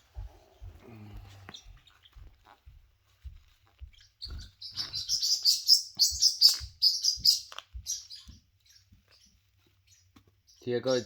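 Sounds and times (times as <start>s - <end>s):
soft low thumps: 0.0s - 5.1s
cockatoo chirping: 3.8s - 11.0s.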